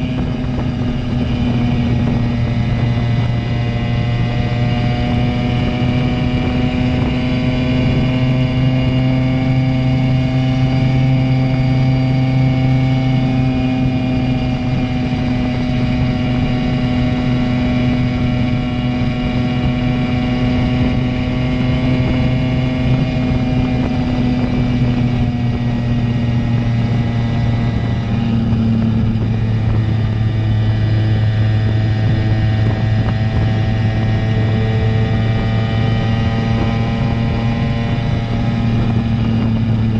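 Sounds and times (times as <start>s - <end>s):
moped engine running: 0.0s - 39.9s.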